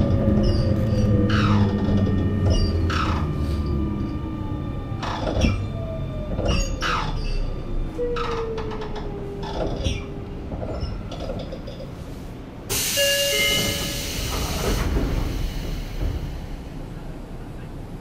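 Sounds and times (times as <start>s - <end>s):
electric train inverter whine: 0.0s - 9.6s.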